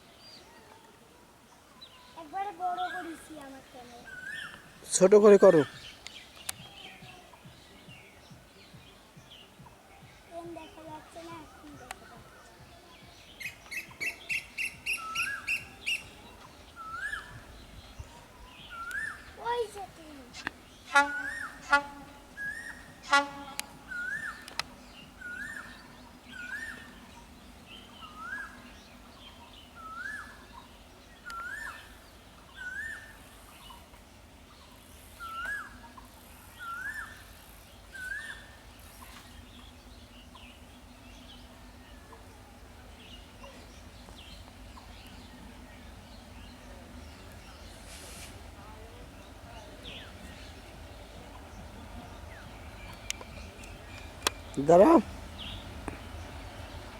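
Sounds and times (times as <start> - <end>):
bird chirps: 1.7 - 56.9
bird whistling notes: 13.4 - 19.4, 20.3 - 24.6, 29.8 - 30.6, 31.2 - 33.3, 36.6 - 37.3
whistled bird note: 20.4 - 24.6.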